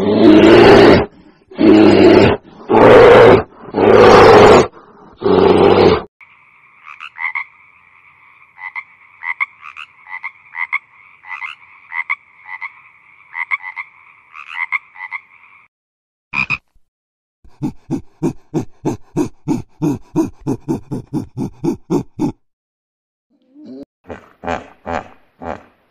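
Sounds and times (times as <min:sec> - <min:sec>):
tree frogs chorus croaking: 0:06.2 - 0:15.7.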